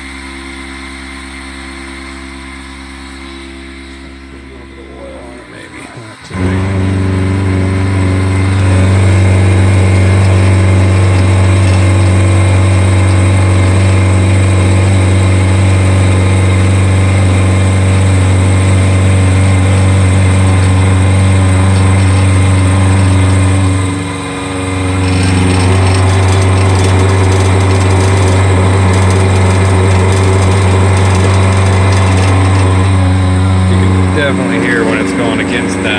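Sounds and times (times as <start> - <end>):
end mill cutting with chatter: 0.8 - 35.9
brush rattling on metal tray: 25.0 - 33.0.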